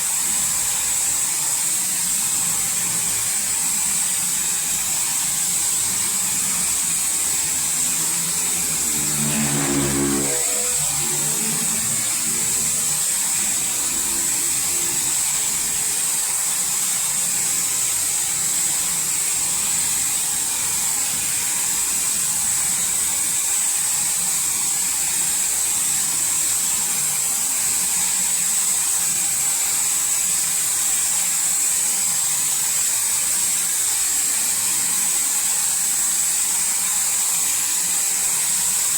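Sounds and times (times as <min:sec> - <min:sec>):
car wash spraying water: 0:00.0 - 0:28.6
brief pitched hum: 0:06.8 - 0:15.4.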